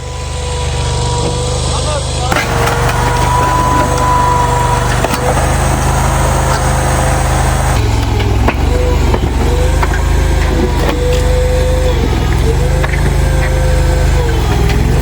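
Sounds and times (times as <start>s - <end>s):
loader engine running under load: 0.0s - 15.0s
wood cracking and breaking: 2.3s - 8.7s.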